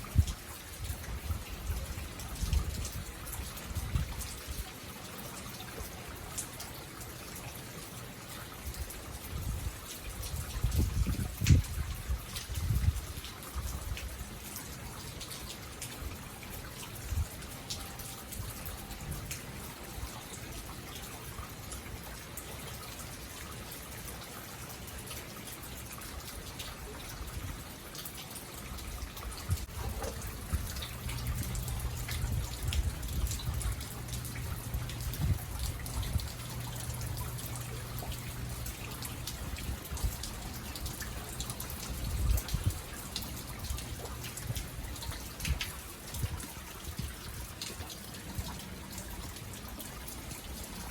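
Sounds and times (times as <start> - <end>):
drips ticking: 0.0 - 50.9
rain falling: 0.0 - 50.9
low steady hum: 29.6 - 42.3.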